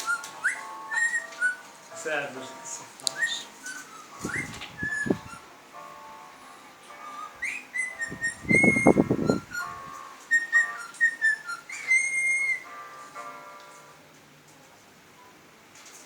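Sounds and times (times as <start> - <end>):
cockatiels whistling: 0.0 - 5.6, 6.8 - 13.9.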